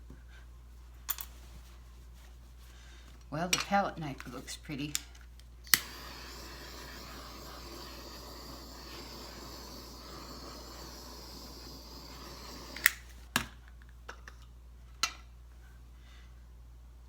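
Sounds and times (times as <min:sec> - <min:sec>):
blow dryer running: 0:05.7 - 0:13.2.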